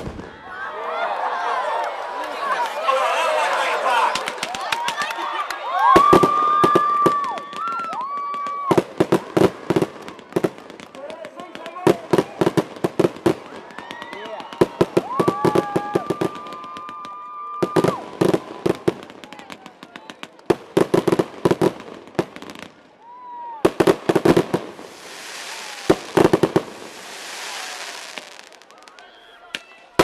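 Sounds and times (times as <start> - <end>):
fireworks bangs and crackles: 0.0 - 0.4, 4.1 - 5.2, 5.8 - 30.0
firework hiss: 24.1 - 28.7
firework whistle: 24.8 - 29.9.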